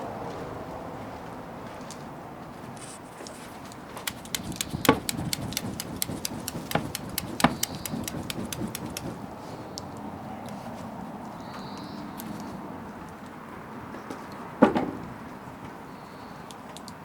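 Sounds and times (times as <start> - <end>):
wood bonfire crackling: 3.6 - 9.5.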